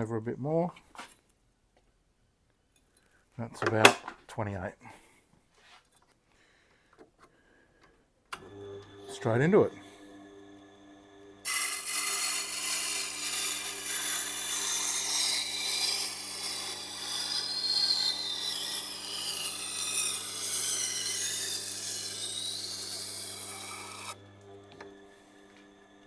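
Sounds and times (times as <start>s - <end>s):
motor hum: 8.4s - 26.0s
knife grinding on wet grindstone: 11.5s - 24.2s.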